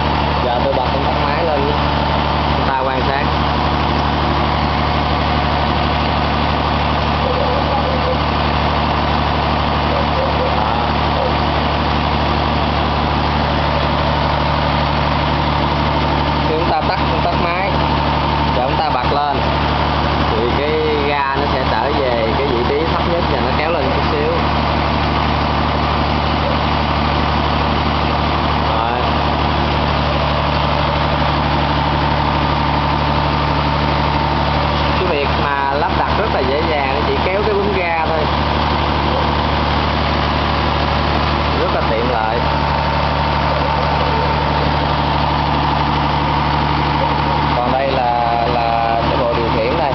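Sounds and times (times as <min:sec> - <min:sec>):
engine running steadily: 0:00.0 - 0:49.9.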